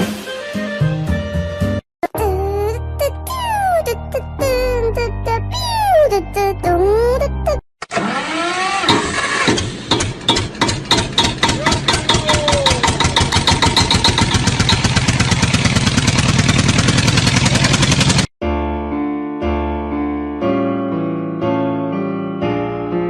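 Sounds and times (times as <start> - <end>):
motor chugging: 7.9 - 18.3.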